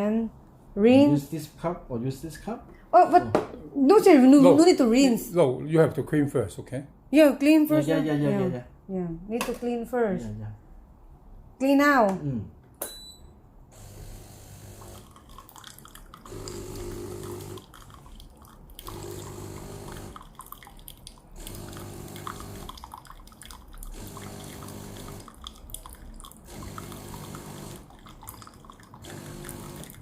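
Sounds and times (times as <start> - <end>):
coffee machine pump humming: 13.8 - 30.0
water trickling into cup: 14.6 - 30.0.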